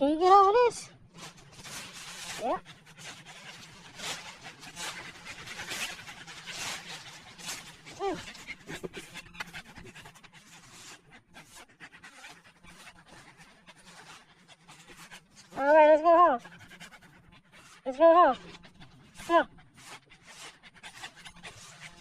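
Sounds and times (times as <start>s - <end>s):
dog panting: 0.2s - 22.0s.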